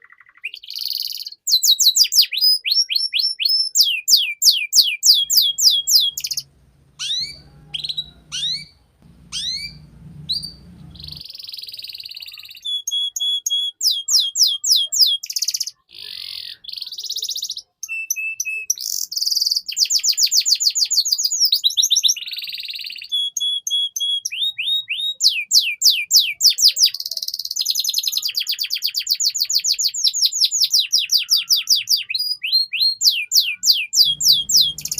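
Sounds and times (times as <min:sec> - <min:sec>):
canary singing: 0:04.5 - 0:11.6, 0:30.7 - 0:34.9
faint low hum: 0:05.2 - 0:11.2, 0:34.0 - 0:34.9.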